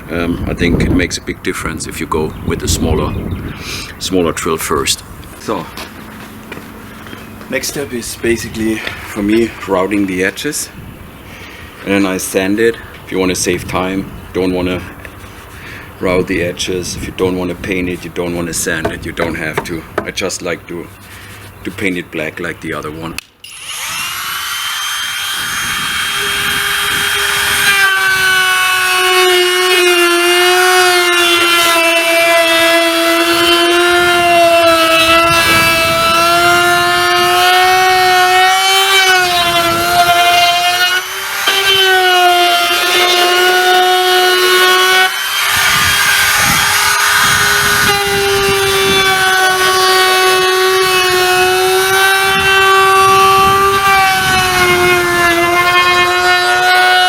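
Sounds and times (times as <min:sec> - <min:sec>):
wood router motor whine: 0:23.4 - 0:57.0.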